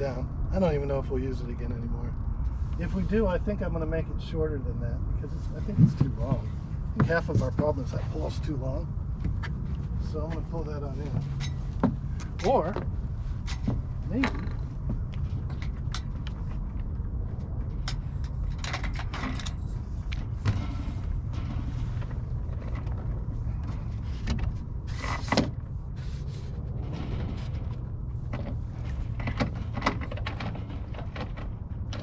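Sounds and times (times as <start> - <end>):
steady low rumble: 0.0 - 32.0
ropes rubbing: 19.2 - 32.0
deck fittings knocking and clicking: 26.8 - 32.0.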